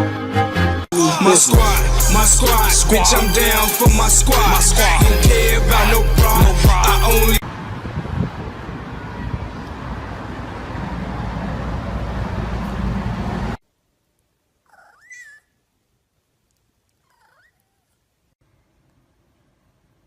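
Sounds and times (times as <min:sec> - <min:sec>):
loud dense noise: 0:00.9 - 0:10.6
cat meowing: 0:17.1 - 0:17.8.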